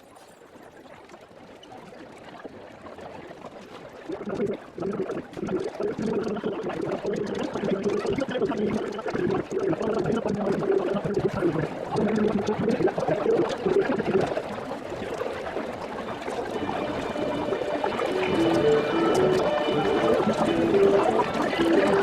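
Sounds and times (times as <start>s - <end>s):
stadium crowd chatter: 12.3s - 22.0s
low wavering hum: 12.9s - 22.0s.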